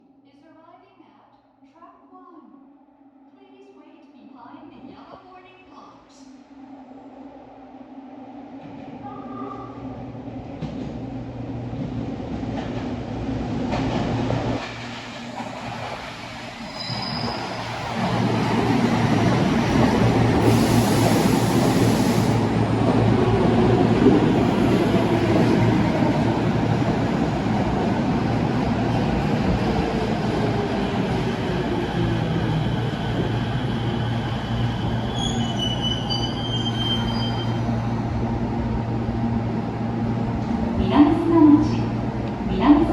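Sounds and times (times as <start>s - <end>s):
subway train rumble: 2.6s - 42.9s
high wheel squeal: 16.7s - 17.8s, 34.8s - 37.6s.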